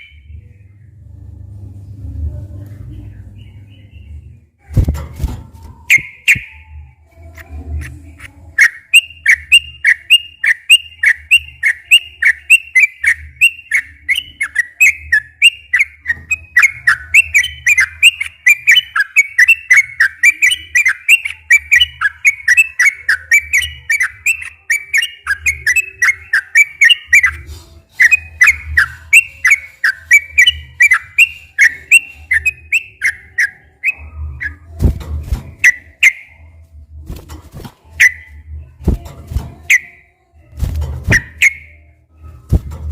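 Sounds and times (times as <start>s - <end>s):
bird singing whistled notes: 5.9s - 6.8s, 8.6s - 27.4s, 28.0s - 34.6s, 35.6s - 36.5s, 38.0s - 38.5s, 39.7s - 40.0s, 41.1s - 41.8s.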